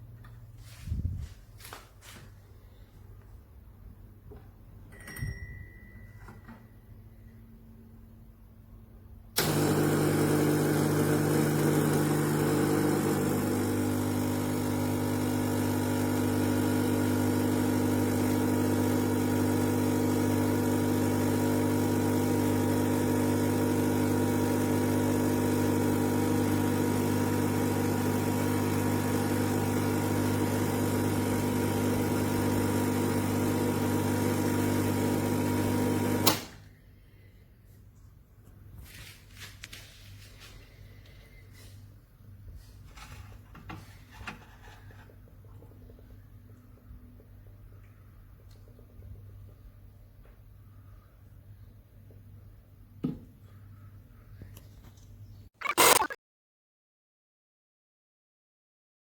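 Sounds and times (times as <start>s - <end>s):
coffee grinder motor hum: 9.4s - 36.4s.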